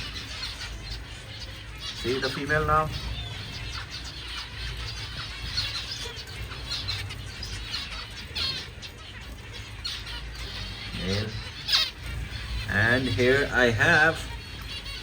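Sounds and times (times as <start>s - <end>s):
finches chirping: 0.0s - 15.0s.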